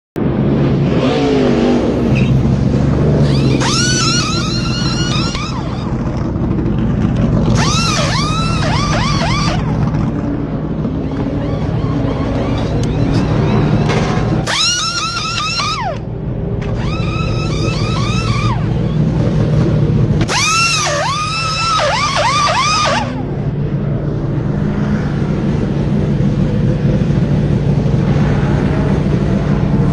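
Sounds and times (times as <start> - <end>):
race car engine running: 0.2 - 29.9
wheel guns whining: 3.2 - 23.6.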